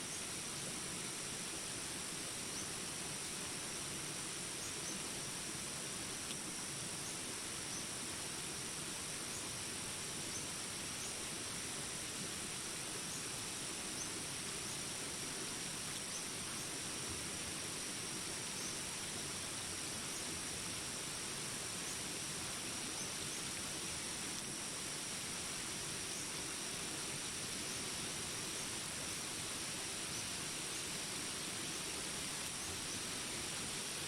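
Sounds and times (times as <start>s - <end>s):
rain hiss: 0.0s - 34.0s.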